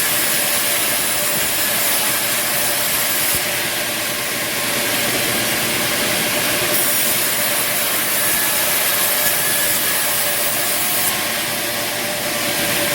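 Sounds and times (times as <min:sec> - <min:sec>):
bandsaw cutting wood: 0:00.0 - 0:03.9, 0:06.7 - 0:12.9.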